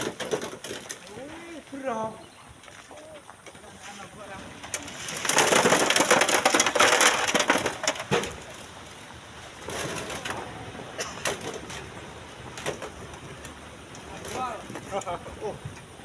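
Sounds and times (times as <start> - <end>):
sand and stones pouring: 3.8 - 8.7.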